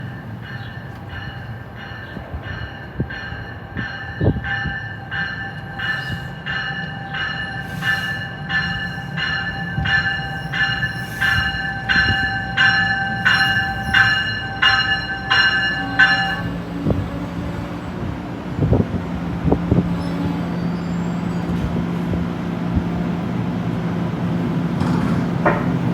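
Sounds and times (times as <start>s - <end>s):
train warning bell ringing: 0.0s - 18.1s
low train rumble: 0.0s - 25.9s
train whine: 0.0s - 25.9s.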